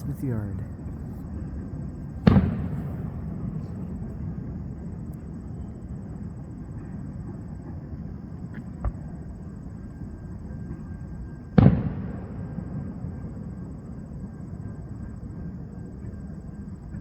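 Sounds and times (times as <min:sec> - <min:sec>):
steady low rumble: 0:00.0 - 0:10.4
firework boom: 0:02.2 - 0:04.7.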